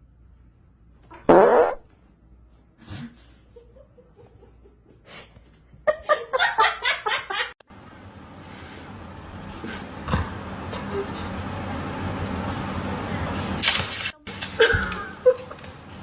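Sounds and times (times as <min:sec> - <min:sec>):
person laughing: 0:14.6 - 0:15.7.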